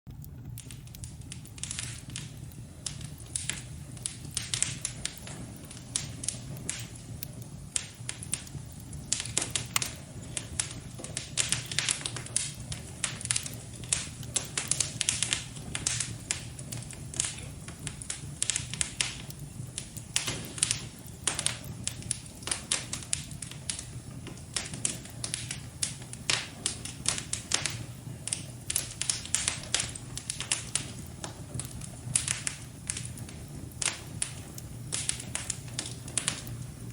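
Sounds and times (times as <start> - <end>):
wood fire crackling and popping: 0.1 - 36.9.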